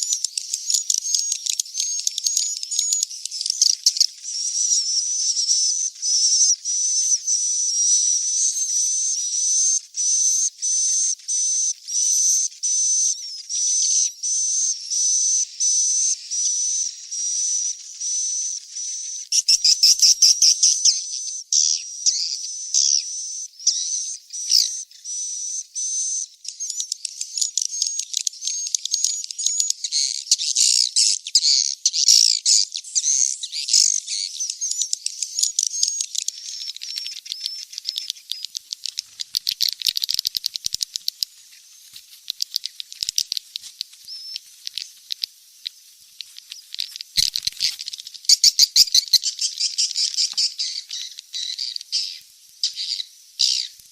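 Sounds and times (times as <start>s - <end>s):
many birds twittering: 0.0s - 53.9s
chicks chirping: 2.3s - 21.0s, 35.4s - 53.9s.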